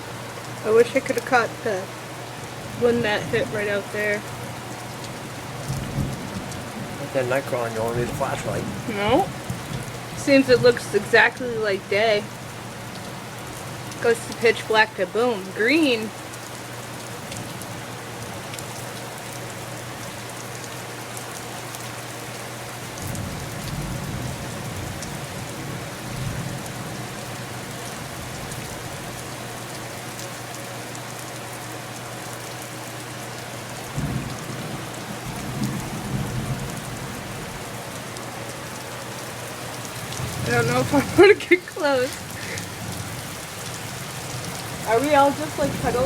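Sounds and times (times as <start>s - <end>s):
steady rain on house: 0.0s - 46.0s
thunder rolling: 5.7s - 11.4s, 33.9s - 37.8s, 40.1s - 46.0s.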